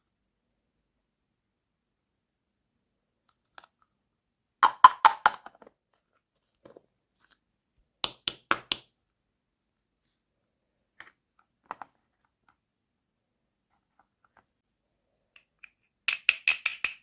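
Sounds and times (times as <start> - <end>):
plastic toy pieces clicking: 15.4 - 17.0.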